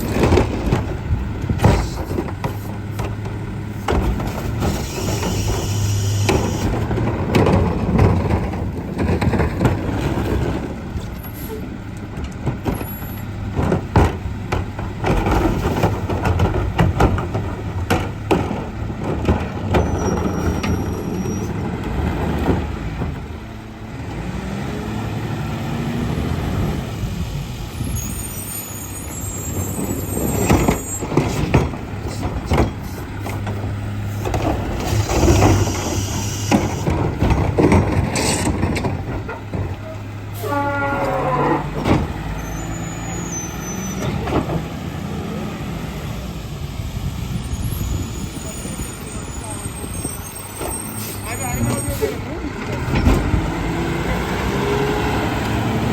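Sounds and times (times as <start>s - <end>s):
bangs and clatter of carts: 0.0s - 23.7s, 27.9s - 45.0s, 47.4s - 55.9s
air brakes hissing: 4.6s - 6.7s, 34.9s - 36.9s
garbage truck diesel engine revving: 16.9s - 27.8s, 29.3s - 49.3s, 50.9s - 55.9s.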